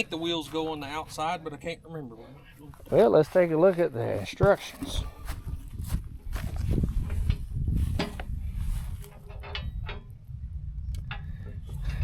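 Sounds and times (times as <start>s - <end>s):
low steady rumble: 5.0s - 12.0s.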